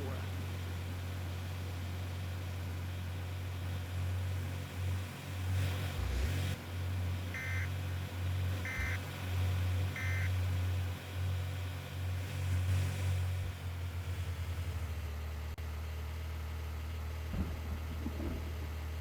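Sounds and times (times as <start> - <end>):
vehicle engine and road noise: 0.0 - 19.0
short electronic beeps: 7.4 - 7.7, 8.6 - 9.0, 10.0 - 10.3.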